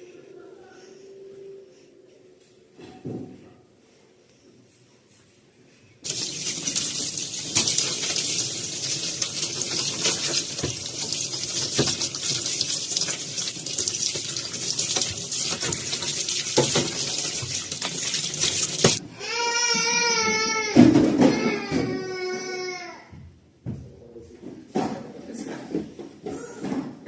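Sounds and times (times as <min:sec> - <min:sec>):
items knocking in sink: 0:06.1 - 0:19.0
water running from tap into sink: 0:06.1 - 0:19.0.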